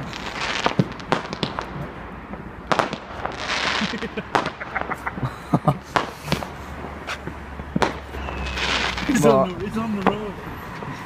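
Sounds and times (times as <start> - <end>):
crackling firework pops: 0.0 - 5.0, 5.9 - 9.2
fireworks bangs: 0.0 - 10.9.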